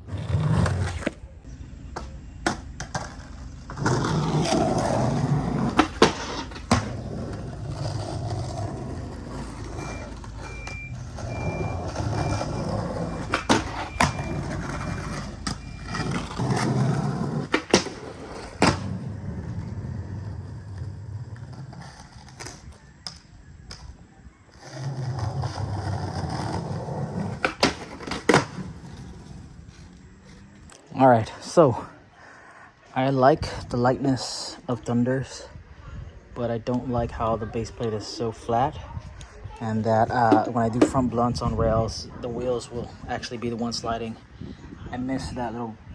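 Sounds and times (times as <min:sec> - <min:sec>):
skateboard popping and landing: 0:00.0 - 0:23.9, 0:24.6 - 0:30.0, 0:40.0 - 0:41.1
skateboard rolling on concrete: 0:00.0 - 0:45.9
short high beeps: 0:09.8 - 0:12.8.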